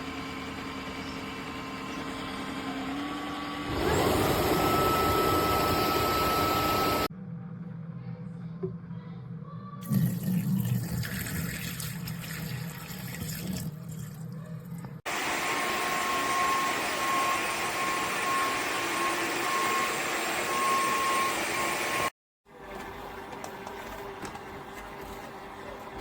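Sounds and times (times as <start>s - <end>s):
vacuum mop running: 0.0s - 7.1s, 15.1s - 26.0s
water being drawn through: 9.8s - 15.0s.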